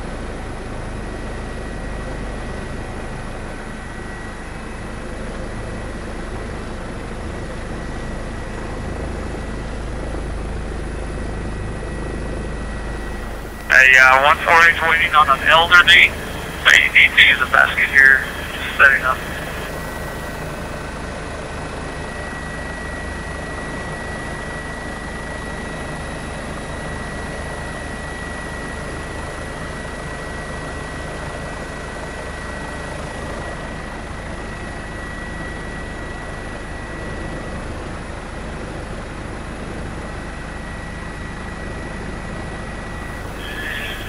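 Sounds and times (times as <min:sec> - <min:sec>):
helicopter engine and rotor: 0:00.0 - 0:44.0
thin steady whine: 0:10.1 - 0:36.6, 0:42.8 - 0:44.0.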